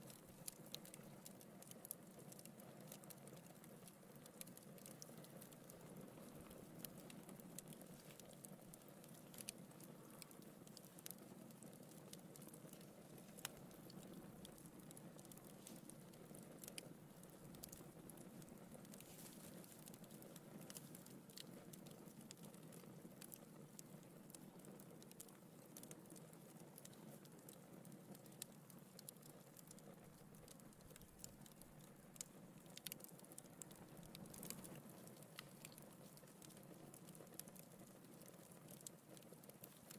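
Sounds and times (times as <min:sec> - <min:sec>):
fire crackling and popping: 0:00.0 - 0:39.9
soft rush of flame: 0:05.0 - 0:21.8.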